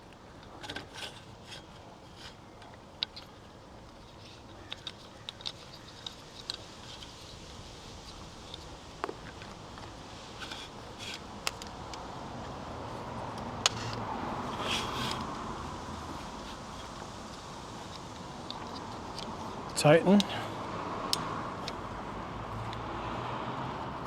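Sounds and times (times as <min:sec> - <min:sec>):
rustling: 0:00.0 - 0:20.7
outdoor background noise: 0:00.0 - 0:24.0
metal bike rack clicks and knocks: 0:13.6 - 0:14.0.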